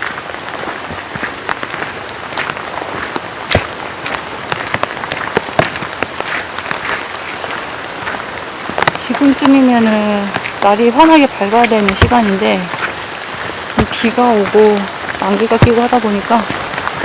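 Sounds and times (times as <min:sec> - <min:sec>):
steady rain: 0:00.0 - 0:17.0
large drops hitting surface: 0:13.8 - 0:14.2.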